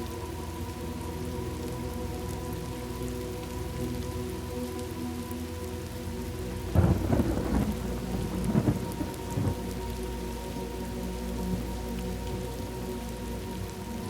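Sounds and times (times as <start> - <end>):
steady rain: 0.0 - 14.0
thunder crack and rumble: 6.7 - 9.7.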